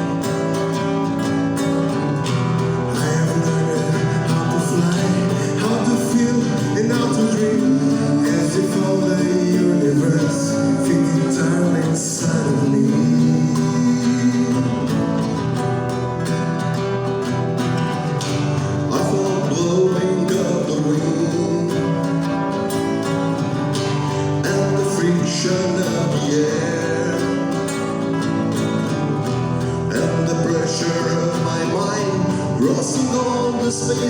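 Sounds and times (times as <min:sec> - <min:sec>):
acoustic guitar: 0:00.0 - 0:34.0
person singing: 0:02.2 - 0:16.2, 0:18.6 - 0:23.0, 0:23.7 - 0:34.0.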